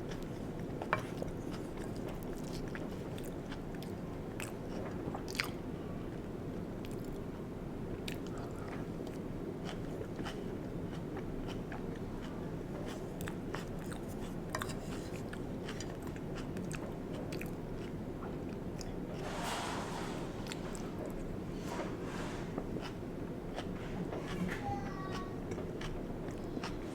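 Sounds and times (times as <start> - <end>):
close chewing and biting: 9.6 - 18.0.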